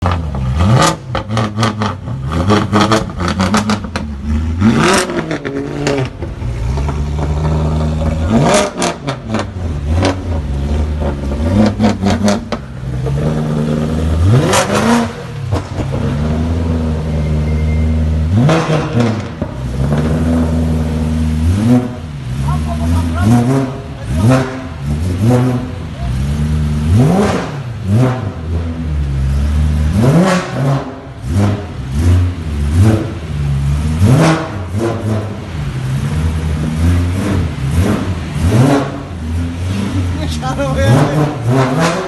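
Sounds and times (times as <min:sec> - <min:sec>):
car engine idling and revving: 0:00.0 - 0:42.0
exhaust crackles: 0:00.0 - 0:42.0.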